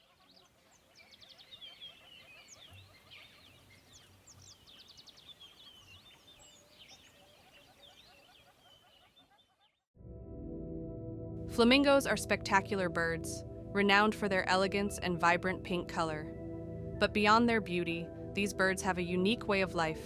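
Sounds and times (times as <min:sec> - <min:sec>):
chorus of birds calling: 0:00.0 - 0:09.8.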